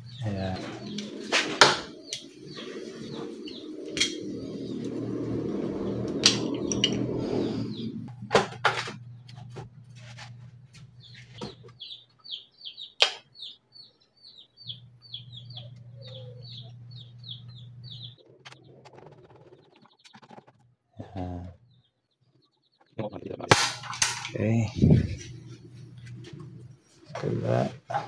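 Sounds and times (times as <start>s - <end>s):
low steady hum: 0.0s - 11.8s, 23.5s - 28.0s
bird chirping: 0.0s - 23.5s.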